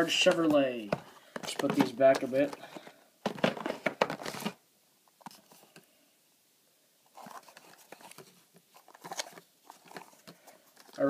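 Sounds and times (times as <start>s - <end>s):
cardboard boxes being handled: 0.0s - 4.6s, 7.1s - 11.0s.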